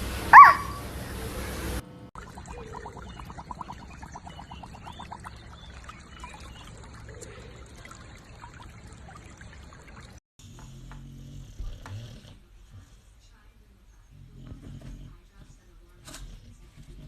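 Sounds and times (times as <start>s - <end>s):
water trickling: 2.2s - 10.2s.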